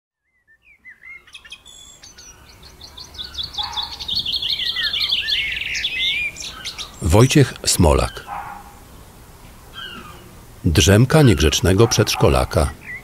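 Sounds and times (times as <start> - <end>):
songbirds chirping: 0.2 - 13.0
fast high bird trill: 1.1 - 7.2.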